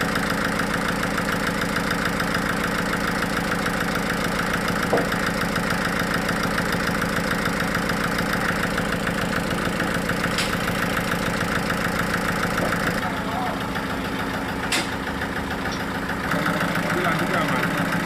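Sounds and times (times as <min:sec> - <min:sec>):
sawmill engine running: 0:00.0 - 0:18.0
knock: 0:04.9 - 0:05.2.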